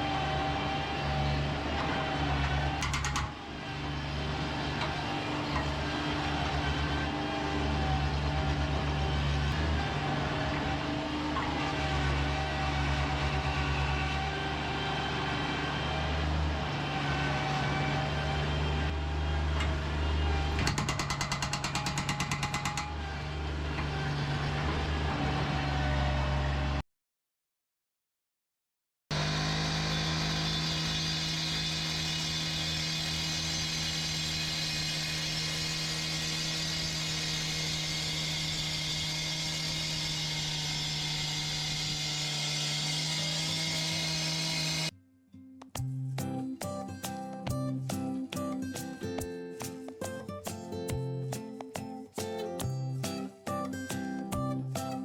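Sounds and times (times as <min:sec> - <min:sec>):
mechanical hammering rattle: 0:02.8 - 0:03.4, 0:20.6 - 0:23.0.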